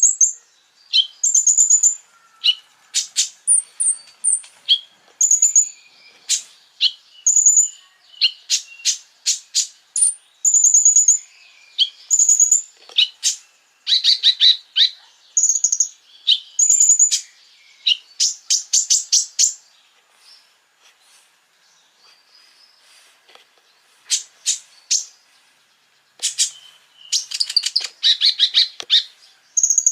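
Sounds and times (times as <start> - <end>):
bird singing chips and whistles: 0.0 - 11.2, 11.8 - 19.6, 26.2 - 29.9.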